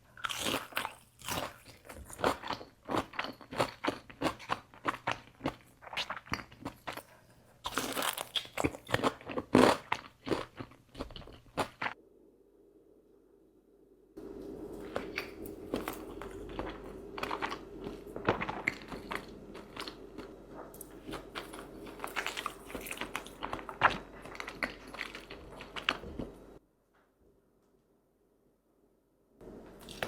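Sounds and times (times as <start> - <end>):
low steady hum: 12.0 - 26.6, 29.4 - 30.0.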